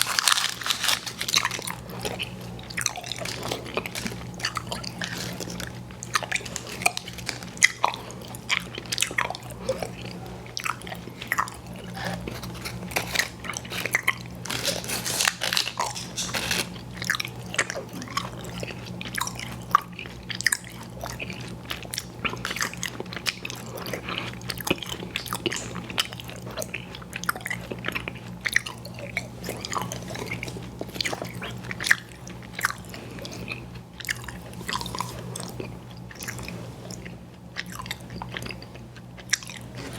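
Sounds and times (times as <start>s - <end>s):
chewing candy: 0.0s - 39.9s
low steady hum: 0.0s - 39.9s.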